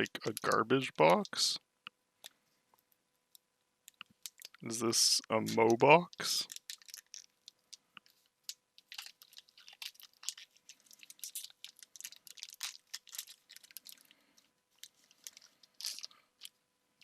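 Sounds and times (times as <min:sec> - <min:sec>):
foil wrappers crinkling: 0:06.4 - 0:07.7, 0:08.8 - 0:16.6.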